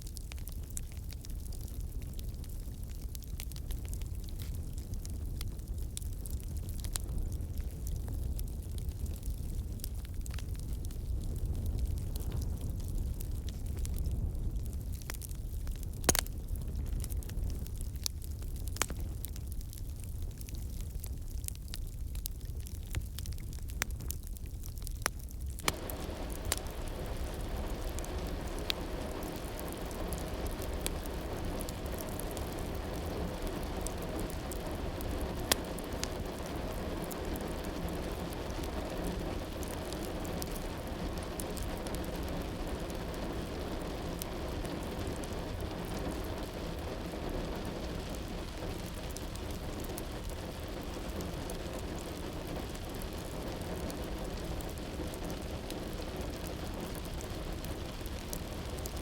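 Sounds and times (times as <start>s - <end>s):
steady rain falling: 24.7s - 59.0s.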